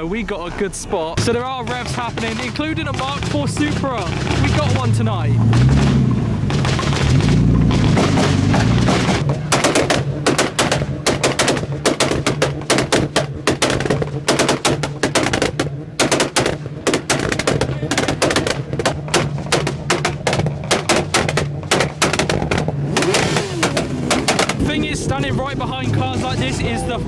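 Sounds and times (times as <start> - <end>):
exhaust popping and crackling: 0.0 - 27.0
car engine at steady revs: 0.9 - 27.0.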